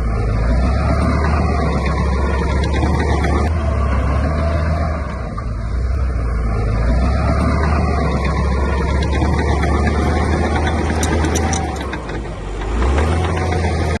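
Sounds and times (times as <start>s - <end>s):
diesel machinery engine drone: 0.0s - 14.0s
metal clanks: 7.4s - 13.7s.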